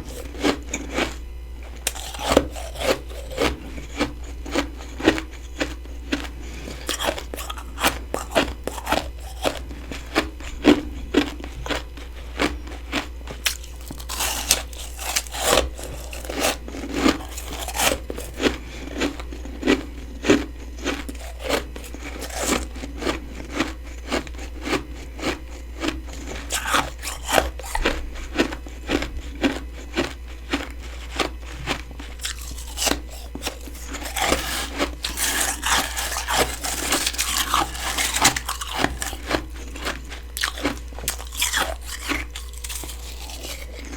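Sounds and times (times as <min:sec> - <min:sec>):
person crunching frost ice: 0:00.0 - 0:01.2, 0:01.8 - 0:43.9.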